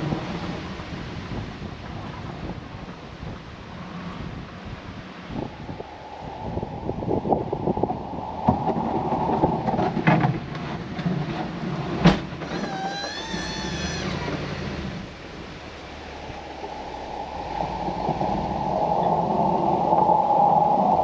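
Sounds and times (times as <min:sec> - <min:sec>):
wavering squeal: 0:12.4 - 0:14.9.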